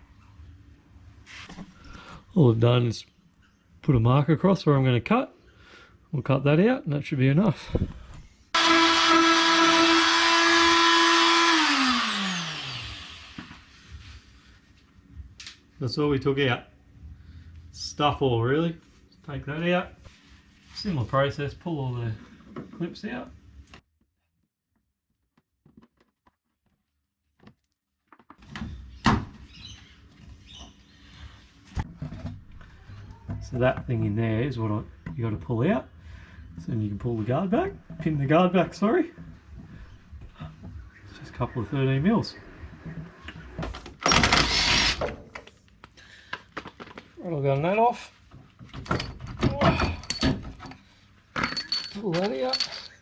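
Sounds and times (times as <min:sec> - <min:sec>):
electric cutting tool running: 0:08.6 - 0:13.6.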